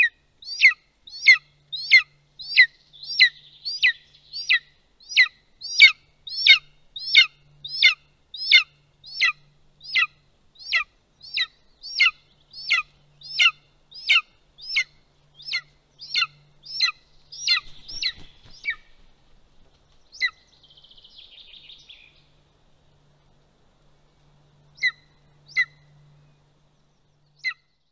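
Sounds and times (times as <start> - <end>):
eagle chick begging call: 0.0 - 18.9, 20.1 - 20.5, 24.8 - 25.9, 27.4 - 27.6
rustle of movement: 8.8 - 27.2.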